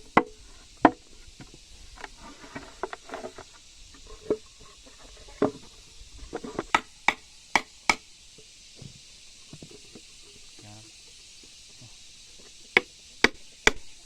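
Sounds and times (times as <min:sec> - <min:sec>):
tools knocking on wood: 0:06.4 - 0:08.0.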